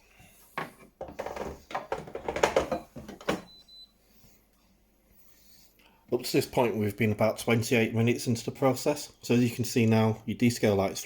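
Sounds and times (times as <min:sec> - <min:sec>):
plastic tank clattering knocks: 0:00.6 - 0:03.5.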